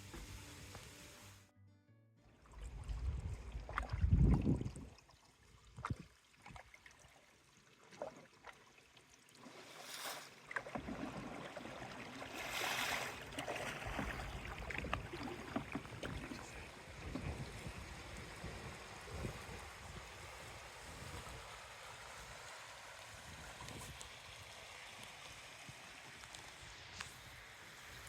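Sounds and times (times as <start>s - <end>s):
water splashing against canoe: 2.4s - 7.2s, 7.8s - 24.1s.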